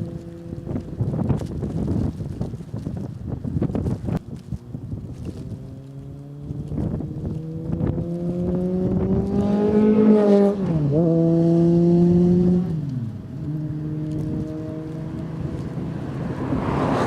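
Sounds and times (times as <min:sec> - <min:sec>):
motorcycle driving by: 0:05.3 - 0:17.0.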